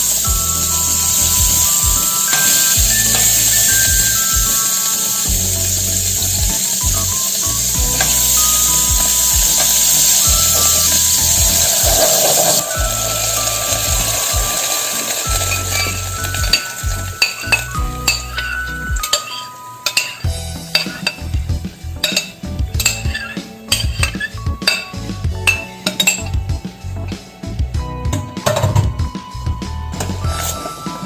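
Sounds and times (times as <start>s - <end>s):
utensil scraping a cooking pan: 0.0s - 26.4s
soft background music: 0.0s - 31.0s.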